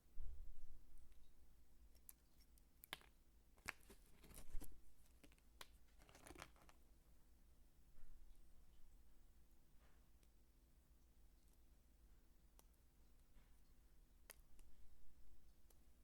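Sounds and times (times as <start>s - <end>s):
dry soap crumbling and crunching: 2.8s - 6.8s.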